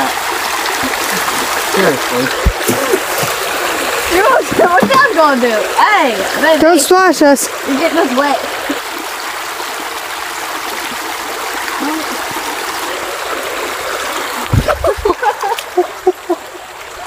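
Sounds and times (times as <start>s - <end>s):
creek water over rocks: 0.0s - 17.0s
dull low thump: 2.3s - 3.4s, 14.5s - 15.1s.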